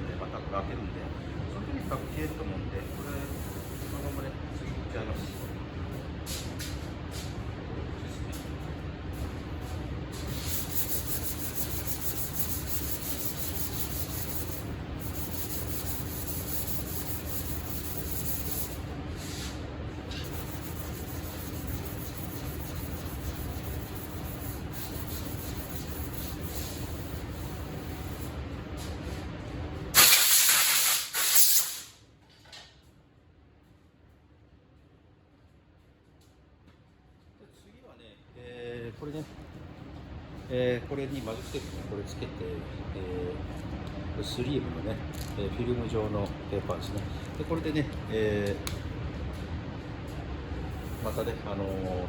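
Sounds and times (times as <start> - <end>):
compressed air blasts: 10.1 - 16.3, 29.9 - 32.0.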